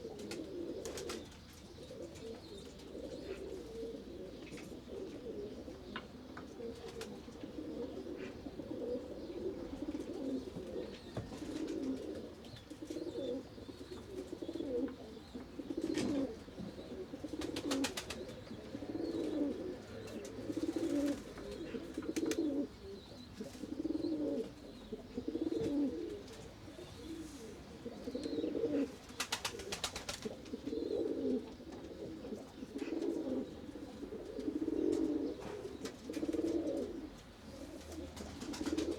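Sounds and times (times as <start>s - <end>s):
pigeons cooing: 0.0s - 38.9s.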